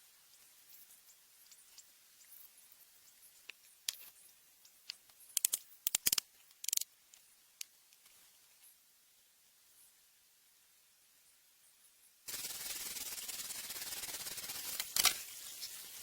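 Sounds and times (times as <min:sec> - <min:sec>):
sharp clicks and snaps: 0:03.5 - 0:08.1, 0:14.6 - 0:15.2.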